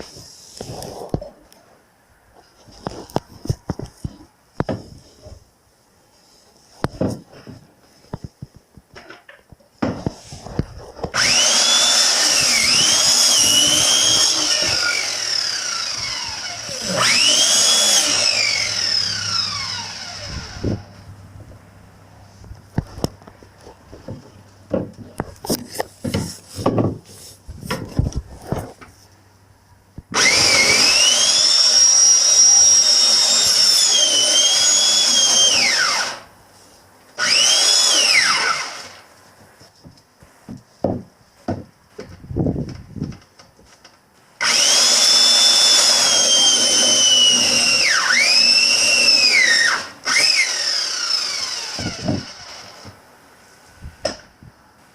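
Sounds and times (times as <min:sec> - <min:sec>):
power tool motor whining: 0:11.1 - 0:21.0, 0:30.1 - 0:36.3, 0:37.2 - 0:39.0, 0:44.4 - 0:53.0.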